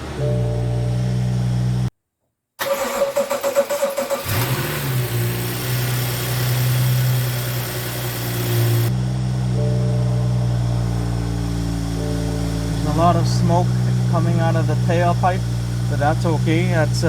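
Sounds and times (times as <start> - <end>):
engine cranking on starter: 2.6 - 8.9
car engine idling: 4.0 - 17.0.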